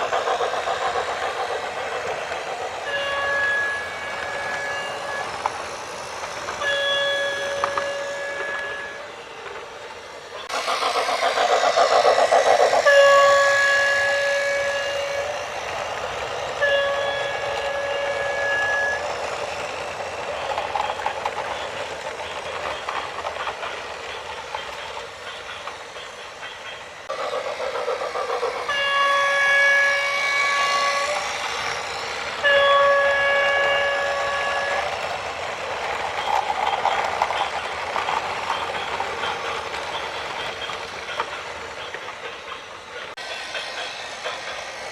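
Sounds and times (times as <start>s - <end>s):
vehicle horn long blasts: 2.8s - 4.9s, 16.6s - 19.0s, 28.7s - 31.0s, 32.4s - 34.7s.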